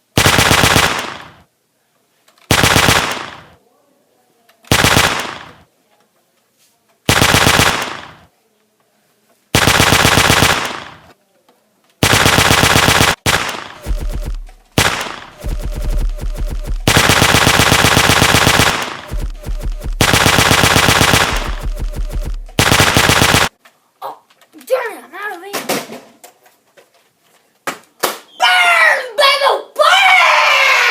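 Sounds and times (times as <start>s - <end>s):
machine gun fire: 0.0s - 1.5s, 2.5s - 3.6s, 4.7s - 5.6s, 7.1s - 8.3s, 9.6s - 11.1s, 12.0s - 23.6s.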